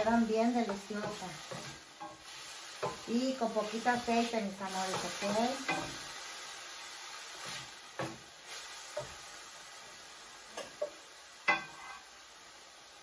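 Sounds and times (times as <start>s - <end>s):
vegetables sizzling in oil: 0.0s - 13.0s
spatula stirring and scraping: 0.6s - 6.2s, 11.5s - 12.1s.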